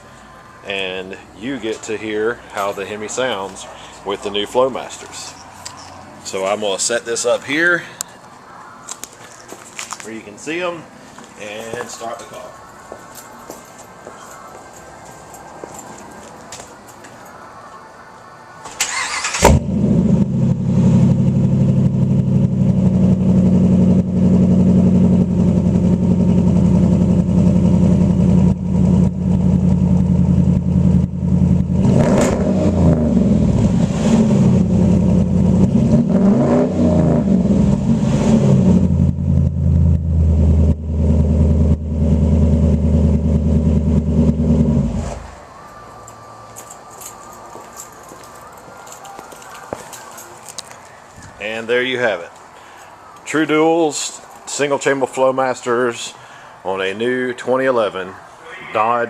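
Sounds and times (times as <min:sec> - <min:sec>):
car engine starting and idling: 0:18.7 - 0:48.0
engine revving: 0:18.9 - 0:45.4.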